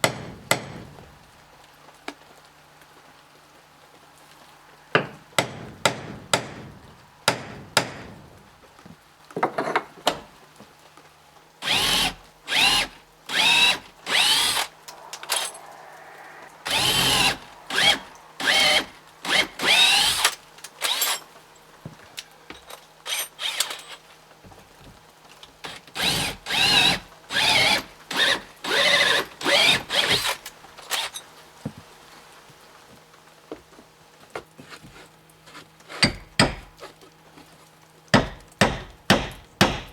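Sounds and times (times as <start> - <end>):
sharp taps and knocks: 0.0 - 0.9
power drill bursts: 11.6 - 15.5, 16.6 - 21.2, 23.1 - 24.0, 25.7 - 31.1.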